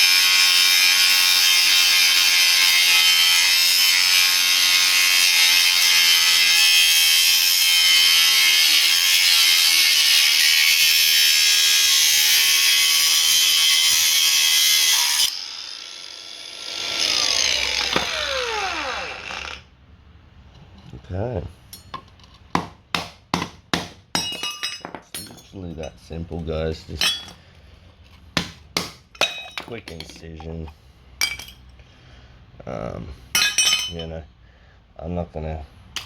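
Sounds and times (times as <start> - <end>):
power tool winding down whine: 15.0 - 19.7.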